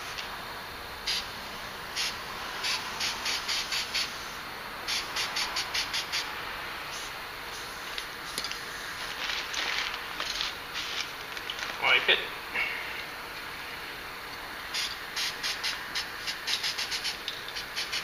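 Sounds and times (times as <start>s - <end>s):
spray-paint can hissing bursts: 1.1s - 1.3s, 2.0s - 6.3s, 14.7s - 18.0s.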